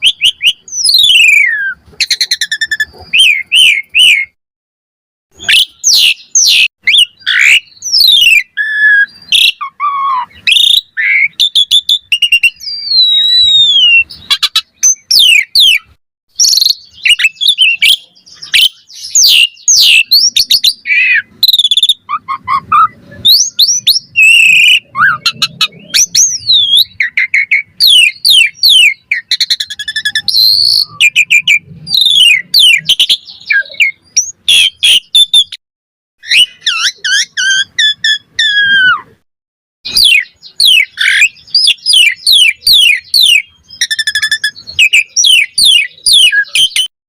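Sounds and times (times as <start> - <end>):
starling singing whistles: 0.0 - 4.4, 5.3 - 35.6, 36.2 - 39.1, 39.9 - 46.9.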